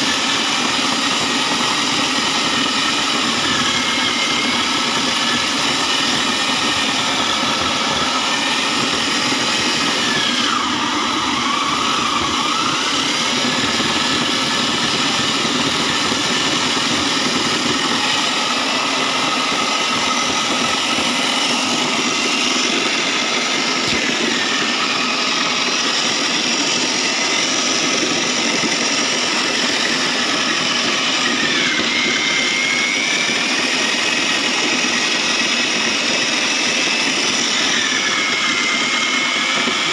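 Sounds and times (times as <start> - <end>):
shredder machine whirring: 0.0 - 39.9.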